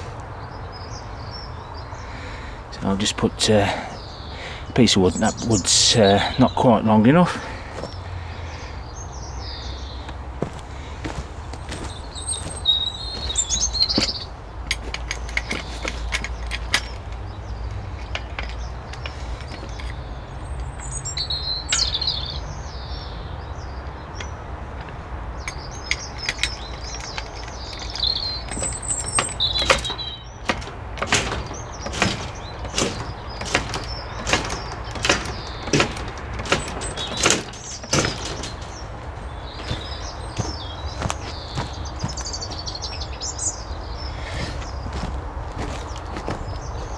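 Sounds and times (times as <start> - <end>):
small birds chirping: 0.0 - 46.9
sharp knocks: 25.9 - 42.3.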